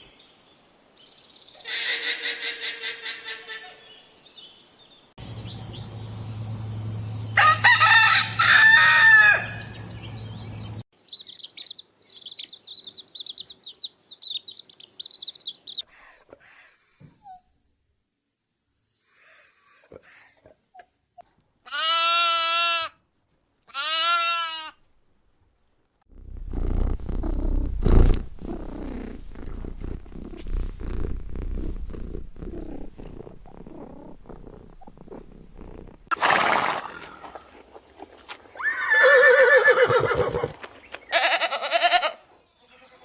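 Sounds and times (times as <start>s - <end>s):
loud drawn-out animal calls: 1.6s - 3.5s
faint high animal chirp: 11.0s - 17.5s
low rumbling animal vocalization: 26.1s - 36.2s.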